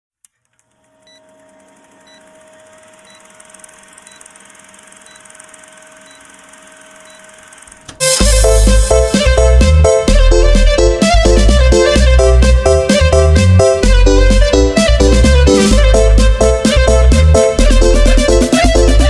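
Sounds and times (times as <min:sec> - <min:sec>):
electronic music with a beat: 0:08.0 - 0:19.0.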